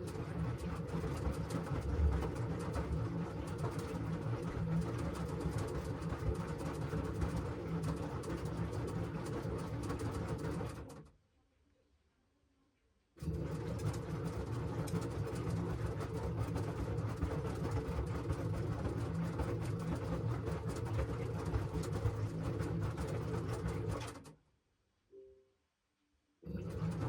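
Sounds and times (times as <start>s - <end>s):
washing machine running: 0.0s - 11.0s, 13.2s - 24.3s, 26.5s - 27.0s.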